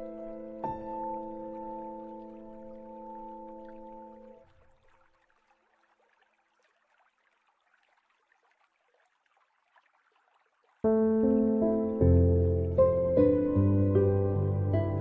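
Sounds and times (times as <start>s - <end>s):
instrumental background music: 10.9s - 15.0s.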